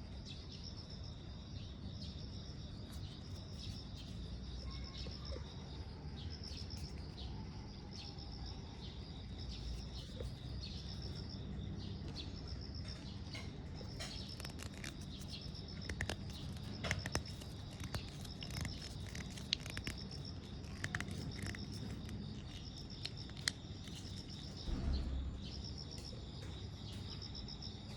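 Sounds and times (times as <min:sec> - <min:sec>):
insects chirping in trills: 0:00.0 - 0:27.9
sharp clicks and ticks: 0:13.2 - 0:24.7.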